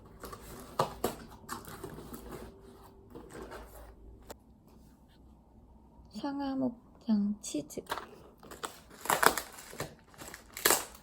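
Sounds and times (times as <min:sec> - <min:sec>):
packaging rustling: 0:00.0 - 0:04.1, 0:08.1 - 0:11.0.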